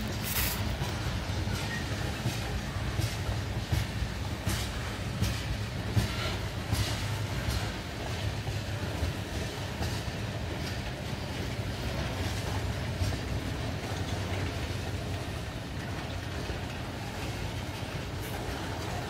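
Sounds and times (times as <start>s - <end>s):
freight train cars rolling: 0.0s - 19.0s.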